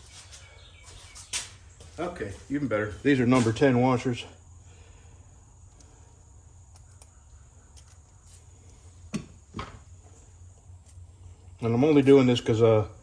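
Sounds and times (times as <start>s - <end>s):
small metal hardware clicking: 6.7s - 8.8s.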